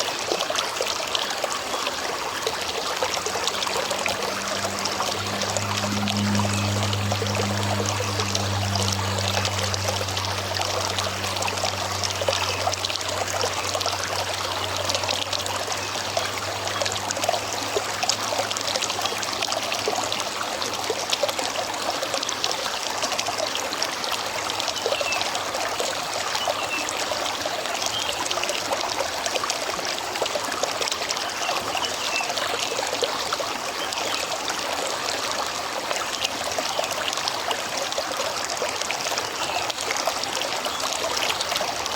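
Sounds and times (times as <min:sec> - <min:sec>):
river water flowing over stones: 0:00.0 - 0:41.9
low engine-like hum: 0:01.6 - 0:30.7.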